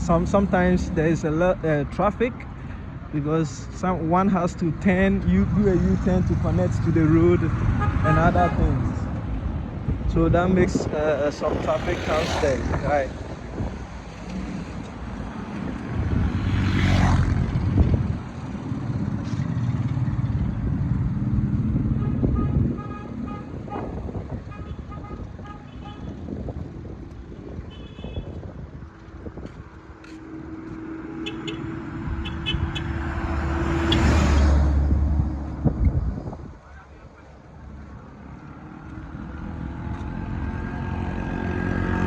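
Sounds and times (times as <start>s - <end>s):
vehicle engines running: 0.0s - 42.0s
car horn toots: 7.8s - 8.7s, 22.0s - 23.9s, 24.5s - 26.2s, 27.7s - 28.3s, 31.2s - 33.0s.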